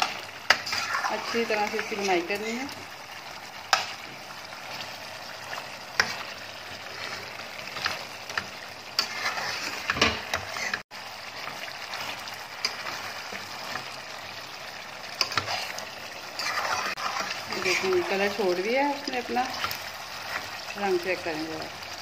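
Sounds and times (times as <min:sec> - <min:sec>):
metal spoon scraping a pot: 0:00.0 - 0:02.2, 0:06.0 - 0:10.8, 0:15.2 - 0:18.2
meat sizzling in a pot: 0:00.0 - 0:22.0.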